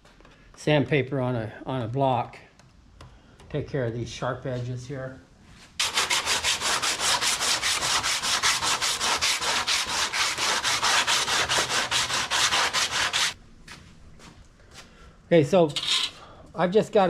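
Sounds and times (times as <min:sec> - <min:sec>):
sandpaper rasping back and forth: 0:05.8 - 0:13.4.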